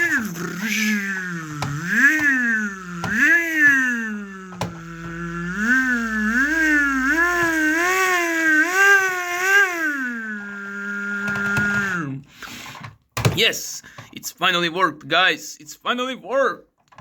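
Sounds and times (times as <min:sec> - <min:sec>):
toy clicks: 0:00.0 - 0:09.6, 0:10.6 - 0:12.0
child imitating car engine: 0:00.0 - 0:12.2.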